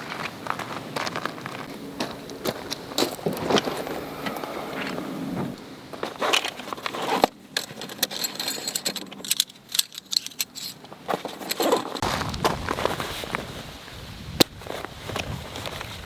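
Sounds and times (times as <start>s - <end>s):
small metal objects clinking: 7.6s - 12.0s.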